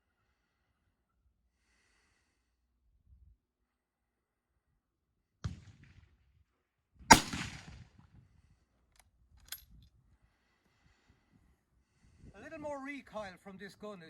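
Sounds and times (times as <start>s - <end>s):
rifle shot with echo: 7.1s - 7.9s.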